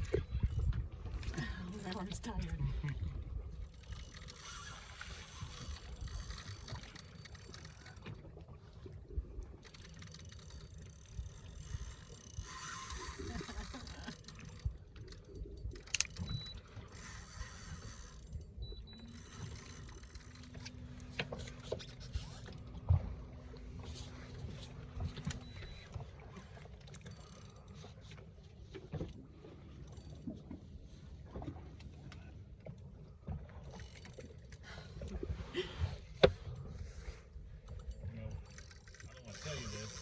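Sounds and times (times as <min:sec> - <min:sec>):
reel clicks: 0:00.0 - 0:08.5, 0:09.4 - 0:23.0, 0:23.8 - 0:30.6, 0:31.4 - 0:35.3, 0:37.6 - 0:40.0
fishing reel gears grinding: 0:03.6 - 0:08.0, 0:09.6 - 0:20.8, 0:38.4 - 0:40.0.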